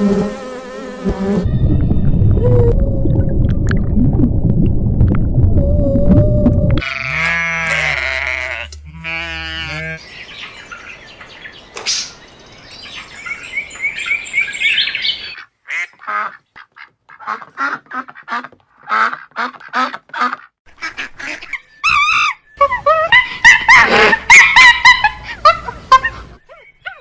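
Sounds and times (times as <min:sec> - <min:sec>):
wavering bleat: 0:06.8 - 0:10.0.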